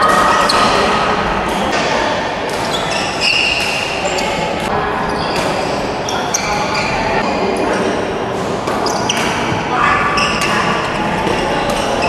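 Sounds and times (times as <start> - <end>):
echoing game noise in hall: 0.0 - 12.0
sneakers squeaking on court: 2.6 - 7.2, 8.7 - 12.0.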